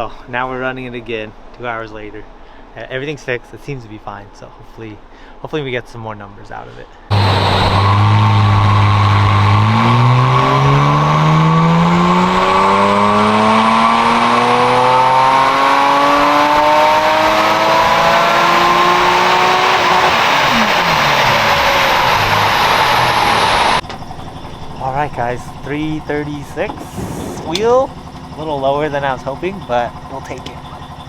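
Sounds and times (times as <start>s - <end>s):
car engine revving: 7.1s - 23.8s, 25.1s - 31.0s.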